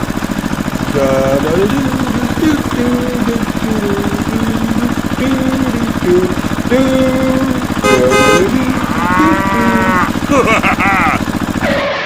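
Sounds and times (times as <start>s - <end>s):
engine idling with rapid chug: 0.0s - 12.0s
wandering tones: 0.0s - 12.0s.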